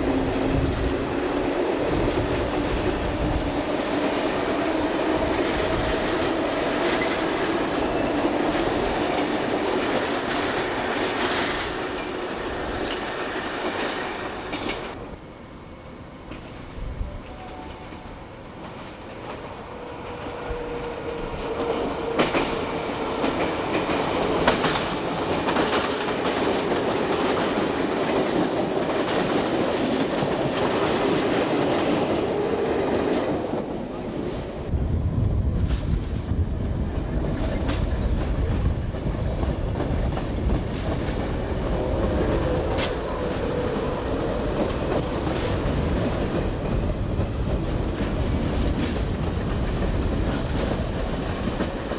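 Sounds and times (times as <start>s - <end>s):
train wheels clicking over rail joints: 17.8s - 33.8s, 35.6s - 51.9s.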